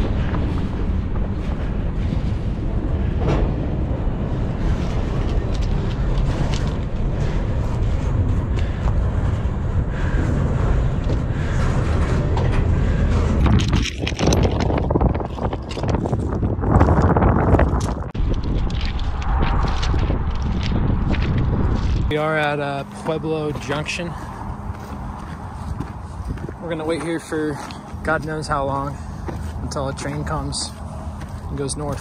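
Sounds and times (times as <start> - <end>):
freight train rumbling past: 0.0 - 13.4
wind buffeting microphone: 0.0 - 32.0.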